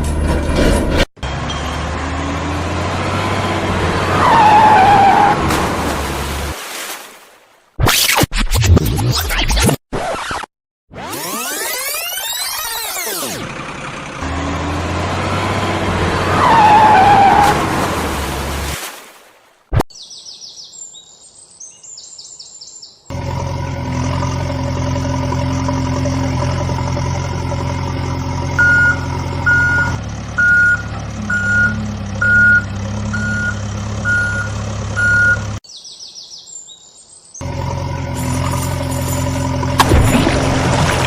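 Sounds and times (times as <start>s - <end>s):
heavy vehicle engine running: 0.0s - 4.1s, 13.2s - 16.4s, 23.1s - 35.6s, 37.4s - 41.0s
reversing alarm beeping: 28.5s - 35.6s.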